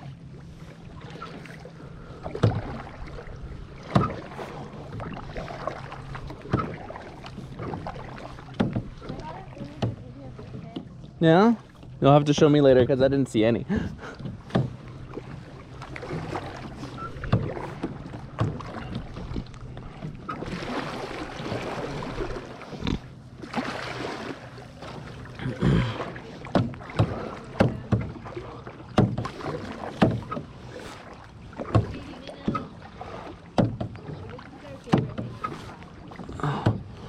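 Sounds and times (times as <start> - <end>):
paddle swishing through water: 0.0 - 37.0
sharp splashes or knocks: 14.2 - 34.1.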